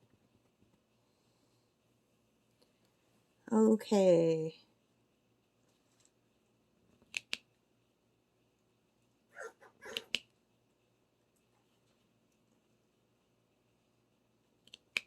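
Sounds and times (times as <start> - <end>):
parrot raspy burst: 9.4 - 10.2
parrot clicking: 9.8 - 10.3.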